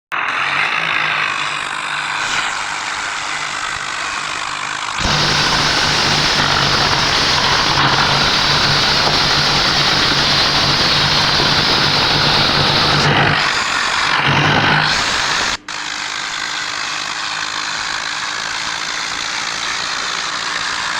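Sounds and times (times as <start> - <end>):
heavy vehicle engine droning: 2.6 - 15.6.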